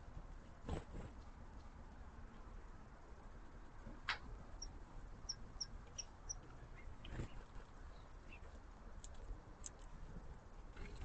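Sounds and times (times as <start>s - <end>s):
songbird chirping: 4.5s - 8.6s.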